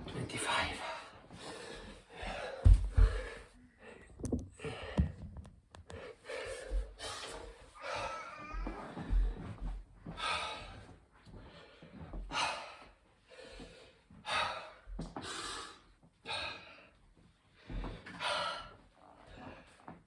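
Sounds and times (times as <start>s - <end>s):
man breathing hard and gasping: 1.2s - 5.2s, 5.9s - 8.1s.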